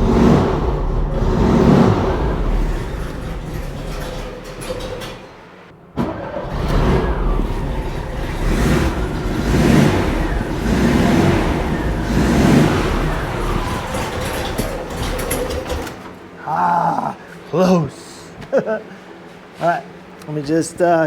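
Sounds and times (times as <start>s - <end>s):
engine running roughly and surging: 0.0s - 16.1s.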